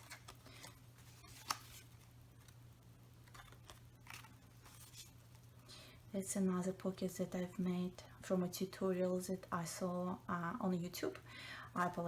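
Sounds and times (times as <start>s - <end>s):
paper rustling: 0.0s - 2.6s, 3.2s - 5.4s.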